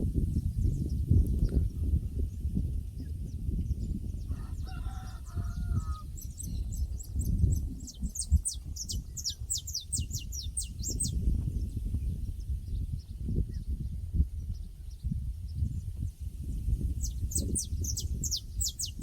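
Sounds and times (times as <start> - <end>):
songbird singing: 0.2 - 19.0
distant rooster crowing: 4.3 - 6.2.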